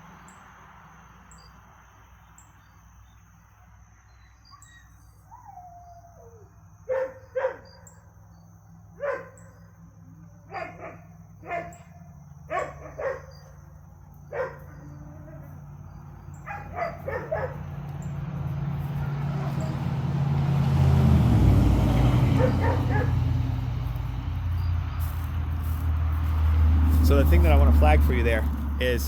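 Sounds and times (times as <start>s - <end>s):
dog whining: 4.5s - 7.6s, 22.4s - 23.2s
dog barking: 6.9s - 7.8s, 9.0s - 9.6s, 10.4s - 13.6s, 14.3s - 15.5s, 16.4s - 17.8s, 19.0s - 19.9s, 22.2s - 23.4s.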